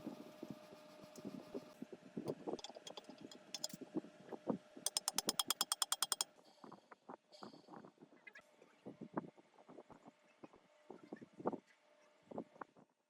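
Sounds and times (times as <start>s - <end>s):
rapid sharp clicks: 2.6s - 3.8s, 4.9s - 6.2s
hand tools knocking on metal: 4.9s - 6.2s.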